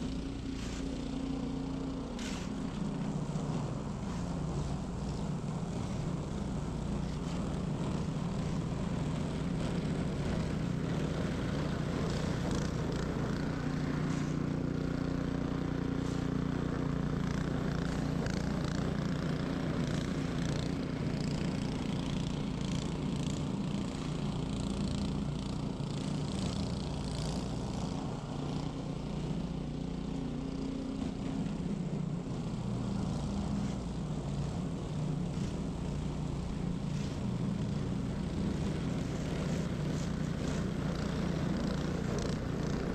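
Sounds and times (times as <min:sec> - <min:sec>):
snow scraping and hissing: 0:00.0 - 0:15.0, 0:15.8 - 0:16.8, 0:30.0 - 0:42.9
snow blower engine hum: 0:00.0 - 0:42.9.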